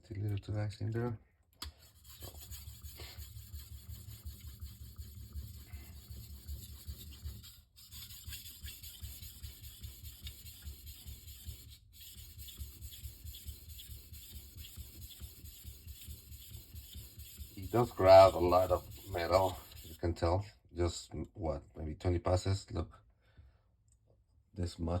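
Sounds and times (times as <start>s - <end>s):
knife rasping on whetstone: 1.8s - 20.0s.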